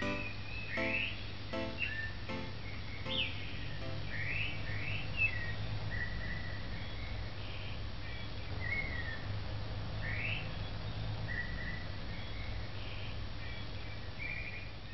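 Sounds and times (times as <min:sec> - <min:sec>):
birds chirping: 0:00.0 - 0:09.3, 0:10.0 - 0:14.9.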